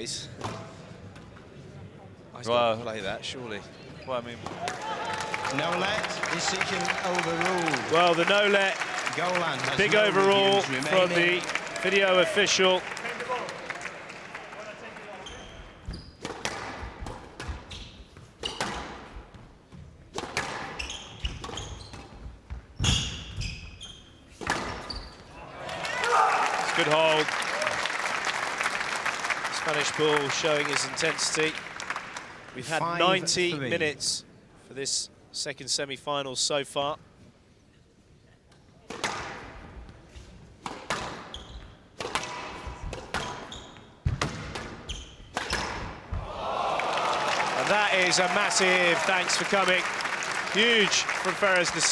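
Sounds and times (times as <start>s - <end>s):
sneaker squeaks on court: 15.2s - 16.7s, 17.4s - 18.8s, 20.4s - 25.4s, 41.3s - 41.8s, 43.2s - 44.0s, 44.8s - 45.8s
squash ball hitting rackets and walls: 15.9s - 23.4s, 24.4s - 24.9s, 38.9s - 39.6s, 40.6s - 41.4s, 42.0s - 46.3s.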